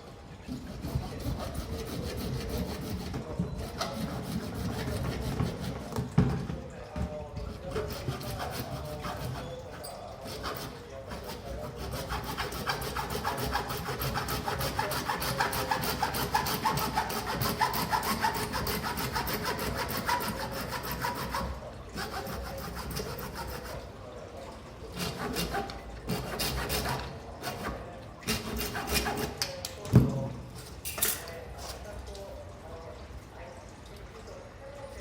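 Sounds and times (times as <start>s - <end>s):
rapid rasping strokes: 0.5s - 5.9s, 7.5s - 23.8s, 25.0s - 29.4s.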